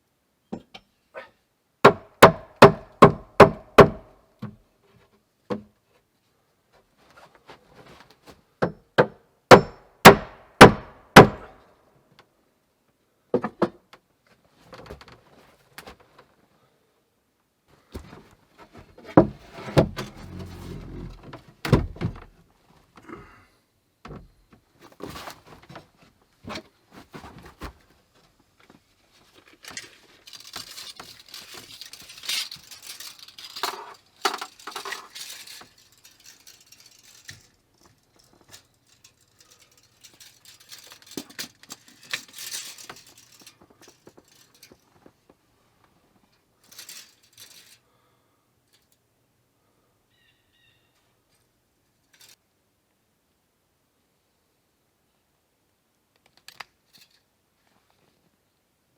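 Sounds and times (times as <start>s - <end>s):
metal tools clinking and rattling: 29.6s - 44.8s.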